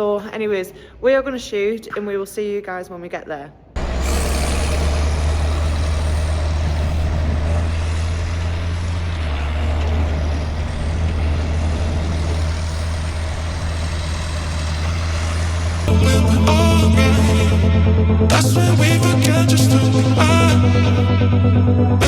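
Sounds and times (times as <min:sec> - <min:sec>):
road and wind noise: 0:03.8 - 0:18.4
truck diesel engine humming: 0:03.8 - 0:22.0.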